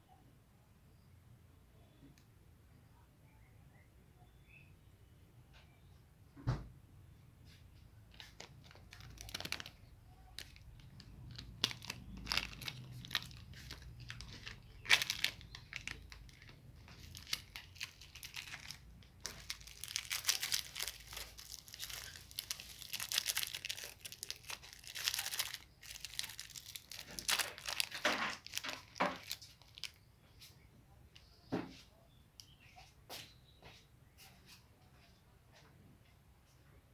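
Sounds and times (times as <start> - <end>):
plastic wrappers crinkling: 7.9 - 30.1.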